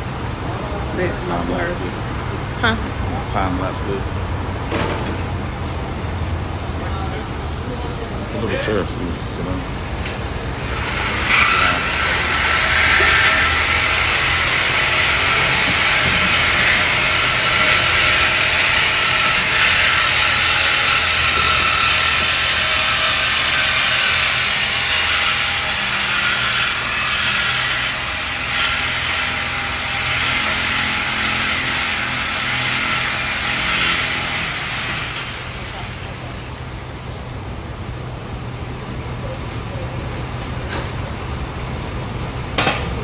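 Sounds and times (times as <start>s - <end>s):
power cutting tool grinding metal: 8.5s - 37.0s.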